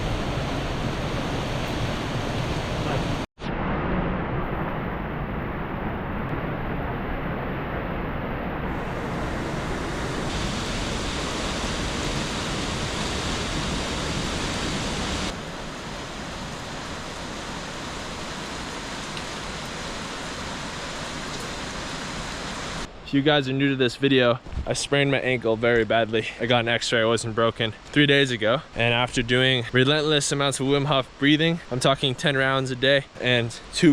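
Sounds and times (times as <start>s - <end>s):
waterfall rushing: 8.7s - 22.9s.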